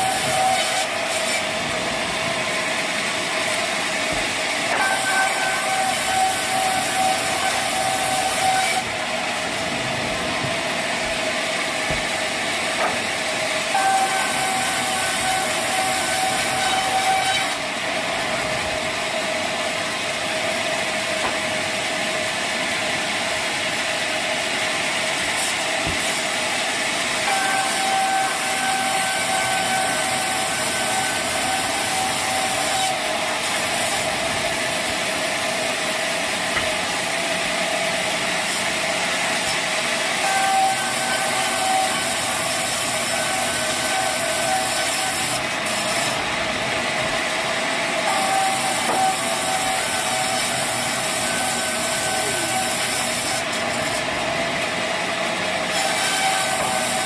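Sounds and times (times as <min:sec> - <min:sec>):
sawmill machinery hissing: 0:19.4 - 0:57.0.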